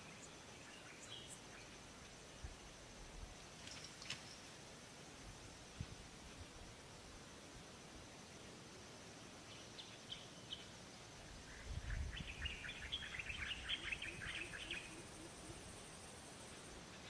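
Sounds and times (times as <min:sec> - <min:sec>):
faint steady hiss: 0:00.0 - 0:17.0
small bird chirping: 0:09.4 - 0:15.7.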